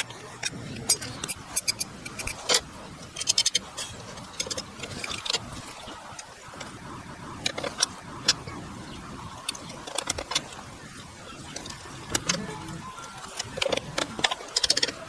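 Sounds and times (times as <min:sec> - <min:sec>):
hand tools clicking and tapping: 0:00.0 - 0:05.4, 0:13.0 - 0:15.0.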